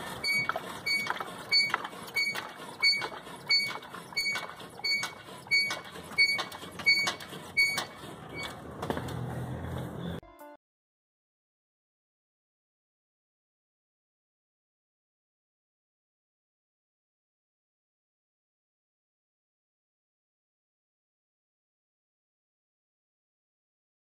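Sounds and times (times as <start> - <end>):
suspension squeaking: 0.0 - 10.2.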